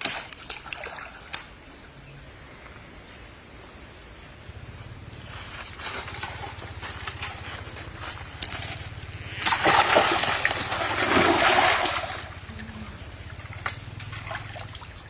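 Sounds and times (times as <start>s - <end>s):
water splashing and sloshing: 0.0s - 1.6s, 4.8s - 15.0s.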